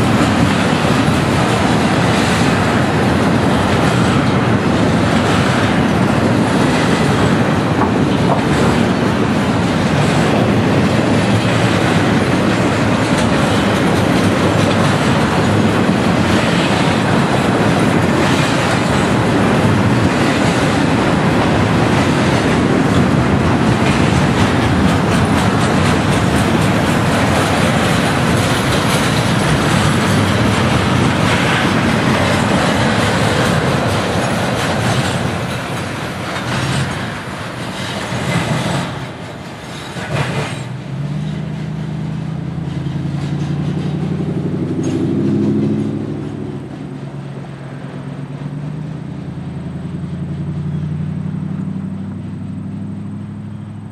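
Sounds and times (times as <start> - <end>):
train cars rumbling on rails: 0.0 - 53.9.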